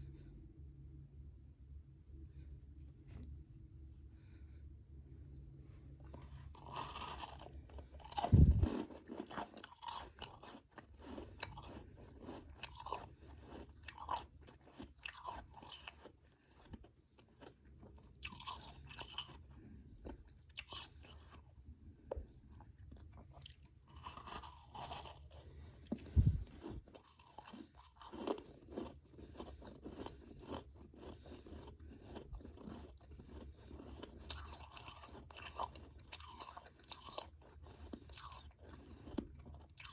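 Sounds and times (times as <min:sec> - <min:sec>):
chewing crunchy ice: 0:06.1 - 0:39.9.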